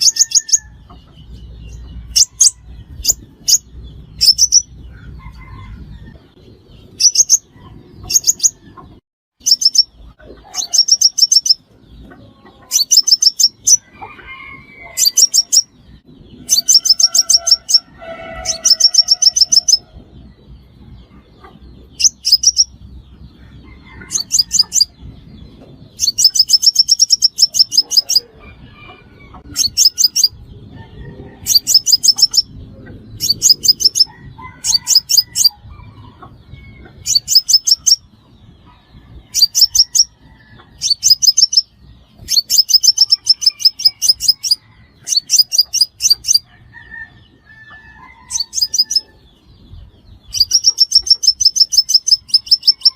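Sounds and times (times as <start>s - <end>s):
sunbird chirping: 9.4s - 13.9s, 15.0s - 19.9s, 21.4s - 23.4s, 25.9s - 28.3s, 31.4s - 35.5s, 40.8s - 46.5s, 50.2s - 52.9s.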